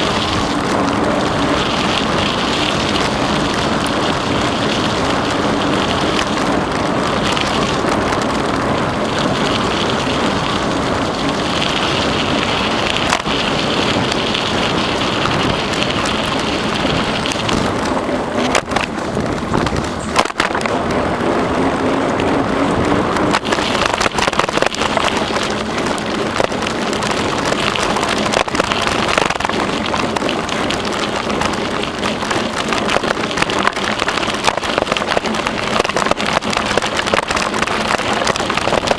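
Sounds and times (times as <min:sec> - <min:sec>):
bicycle clicks and knocks: 0:00.0 - 0:38.9
bicycle tyres rolling on trail: 0:00.0 - 0:38.9
wind on microphone: 0:00.0 - 0:38.9.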